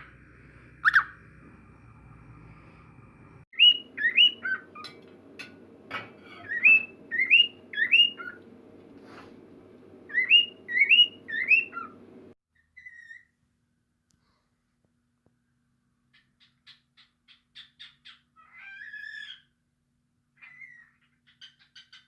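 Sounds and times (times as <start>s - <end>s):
cockatiel whistling: 0.8s - 1.2s, 3.6s - 4.9s, 6.4s - 8.4s, 10.1s - 12.0s.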